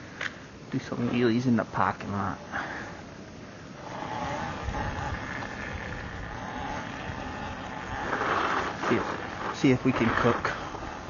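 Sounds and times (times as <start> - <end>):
wind: 0.0 - 11.0
electric dirt bike motor whining: 3.7 - 11.0
tyre noise: 3.8 - 11.0.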